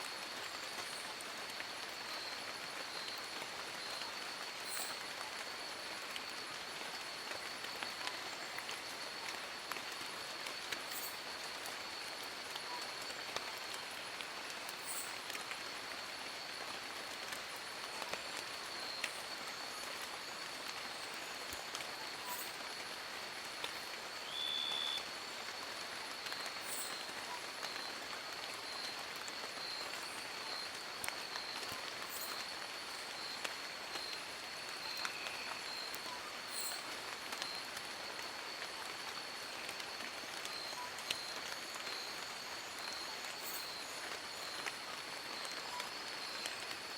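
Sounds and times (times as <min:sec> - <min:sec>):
rain on leaves: 0:00.0 - 0:46.9.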